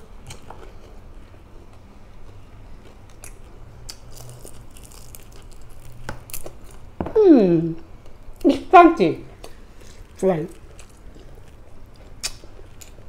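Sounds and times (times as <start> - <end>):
person chewing crispy fish: 2.3 - 6.9, 9.4 - 13.0.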